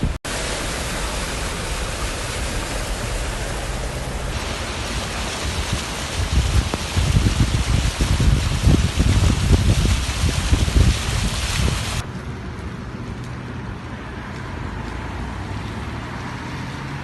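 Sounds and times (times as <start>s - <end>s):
rain hissing: 0.0s - 12.0s
wind gusts buffeting microphone: 0.0s - 12.0s.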